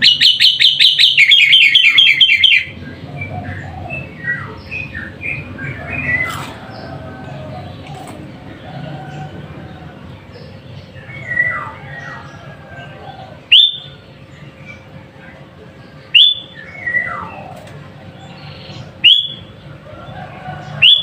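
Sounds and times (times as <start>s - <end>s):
bulbul whistled calls: 0.0s - 6.3s, 13.5s - 14.0s, 16.1s - 17.5s, 18.3s - 19.5s
steady low hum: 0.0s - 21.0s.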